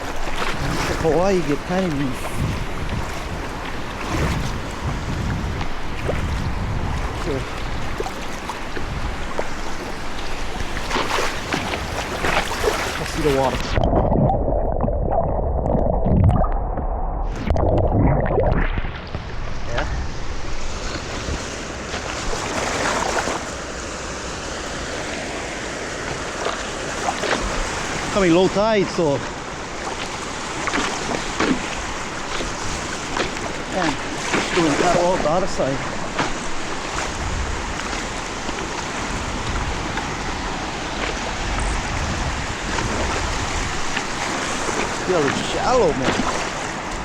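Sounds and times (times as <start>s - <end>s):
low wind rumble on microphone: 0.0s - 23.7s, 24.5s - 47.0s
shallow surf washing and splashing: 0.0s - 47.0s
loud water splash: 26.4s - 47.0s.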